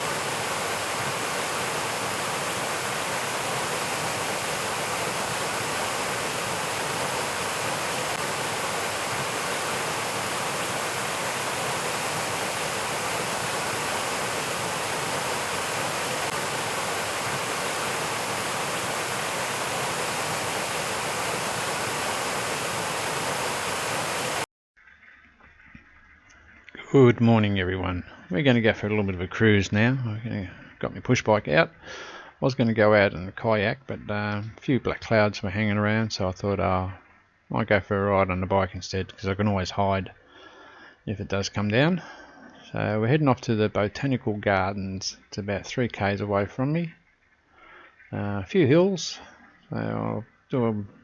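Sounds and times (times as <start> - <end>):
steady rushing noise: 0.0 - 24.5.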